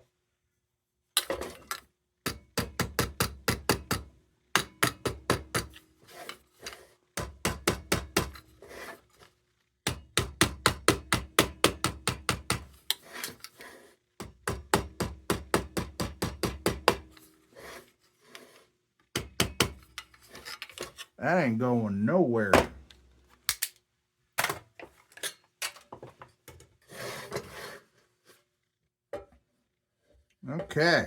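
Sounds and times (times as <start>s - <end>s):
hammer tapping on sheet metal: 2.3s - 5.7s, 9.9s - 12.7s, 14.2s - 17.1s, 19.2s - 19.8s.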